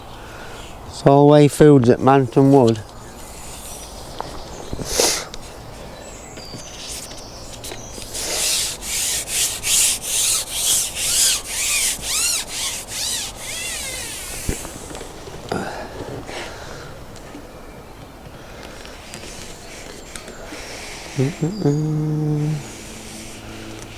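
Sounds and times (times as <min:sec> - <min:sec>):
rhythmic scraping with squeaks: 0:08.0 - 0:15.0.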